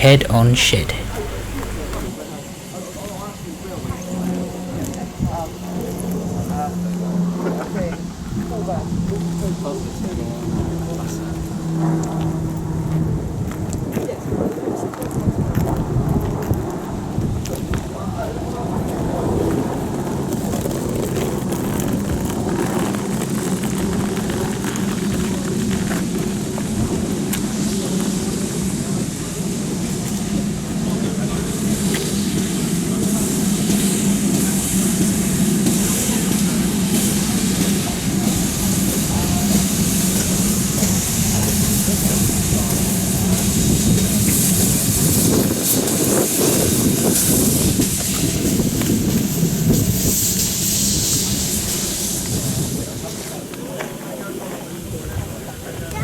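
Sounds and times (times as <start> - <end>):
train rumbling: 0.0 - 2.1, 22.2 - 53.2.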